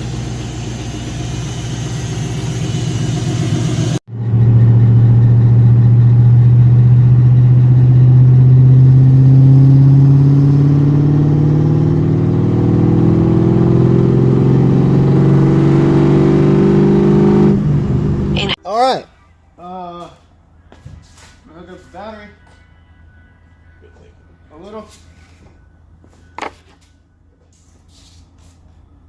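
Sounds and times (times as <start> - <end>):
supercharged car engine running: 0.0 - 18.6.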